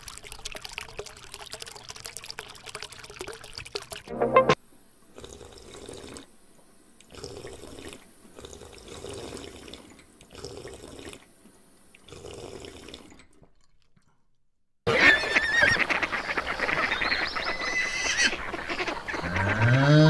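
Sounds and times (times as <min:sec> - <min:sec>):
animal slurping water: 0:00.0 - 0:04.1, 0:05.1 - 0:06.4, 0:07.0 - 0:14.4.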